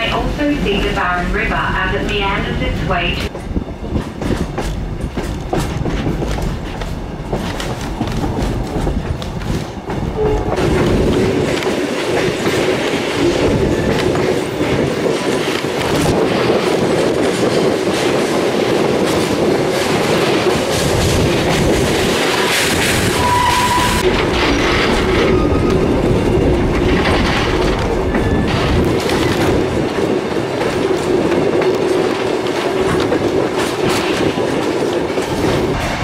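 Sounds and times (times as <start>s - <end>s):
train wheels clattering over rail joints: 3.3s - 36.0s
high wheel squeal: 23.2s - 24.0s.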